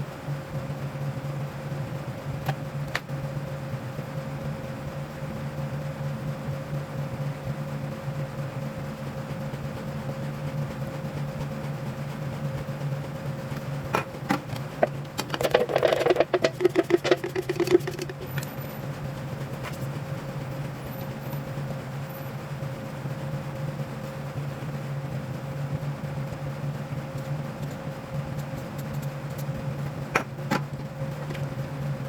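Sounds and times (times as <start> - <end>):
steady machine hum: 0.0 - 32.0
rapid clicks and clatter: 10.3 - 21.6, 26.2 - 32.0.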